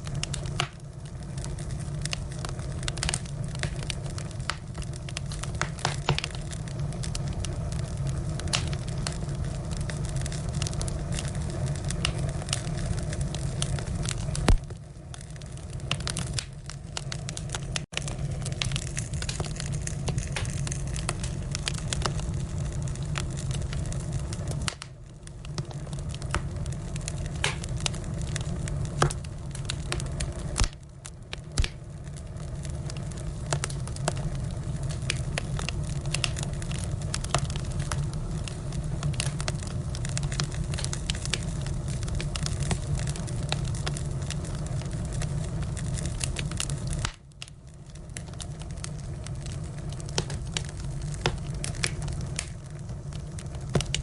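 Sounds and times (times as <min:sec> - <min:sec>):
firewood crackling and popping: 0:00.0 - 0:54.0.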